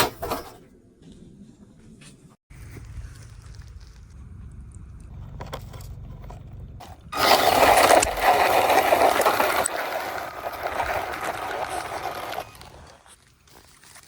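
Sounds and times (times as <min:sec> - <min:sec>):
rc car motor and tyres scraping: 0:05.0 - 0:14.0.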